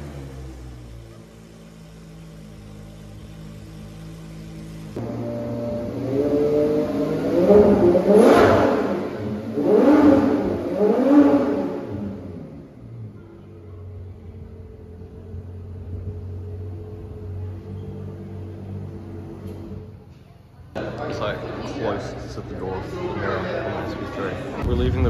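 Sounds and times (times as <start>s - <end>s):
engine revving in short blips: 0.0s - 13.2s
sports car engine idling: 0.0s - 25.0s.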